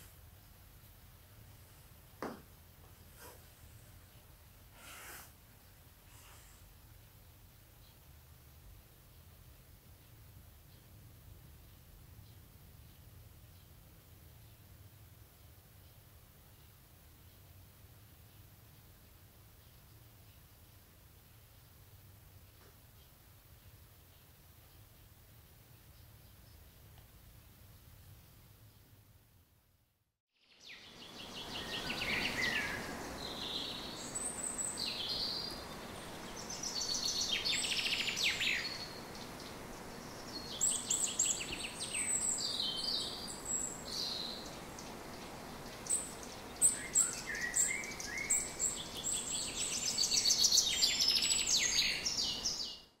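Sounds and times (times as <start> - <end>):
background hiss: 0.0 - 53.0
songbird singing: 30.4 - 53.0.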